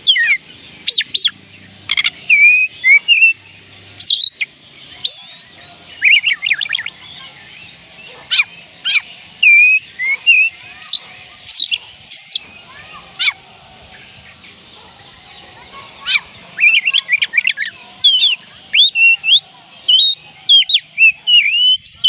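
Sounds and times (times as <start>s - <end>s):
bird singing whistled notes: 0.0s - 22.0s.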